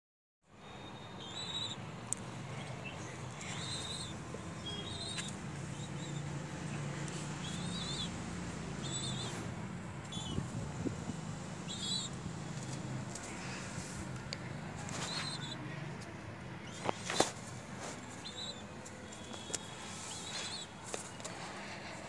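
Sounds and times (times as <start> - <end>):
bird chirping: 0.6 - 10.6, 11.6 - 13.6, 15.1 - 15.6, 16.6 - 17.2, 18.0 - 21.2.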